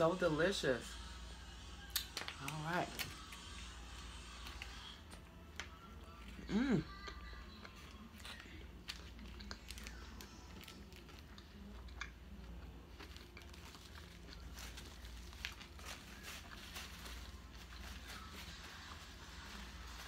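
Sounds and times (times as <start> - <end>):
low steady hum: 0.0 - 20.0
person chewing food: 3.0 - 17.9
foil wrapper crinkling: 8.0 - 11.3, 12.9 - 20.0.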